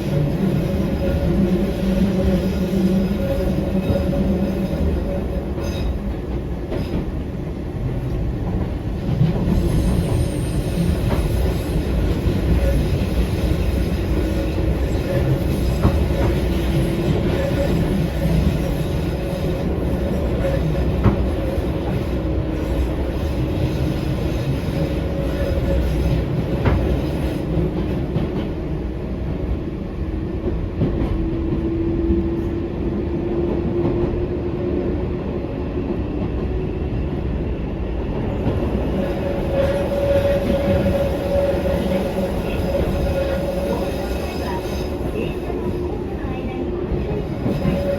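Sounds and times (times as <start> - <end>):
wheels rumbling on rail: 0.0 - 47.9.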